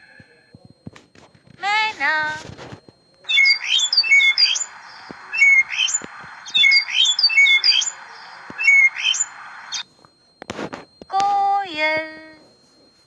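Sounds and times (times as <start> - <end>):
bird chirping: 3.3 - 9.8
steady hiss: 3.4 - 9.8.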